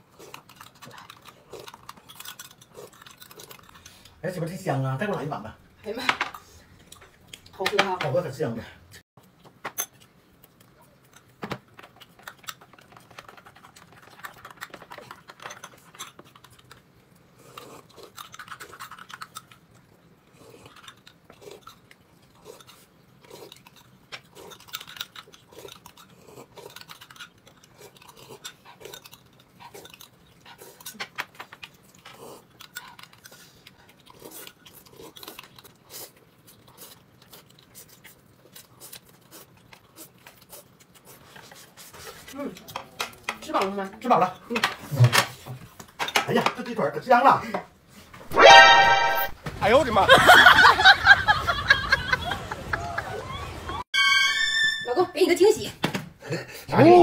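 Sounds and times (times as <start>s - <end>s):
person chewing: 0.0s - 4.2s, 9.2s - 43.0s.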